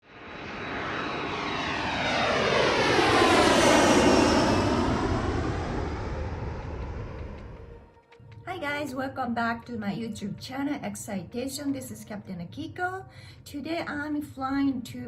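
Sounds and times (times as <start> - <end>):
jet airplane passing overhead: 0.0 - 8.4.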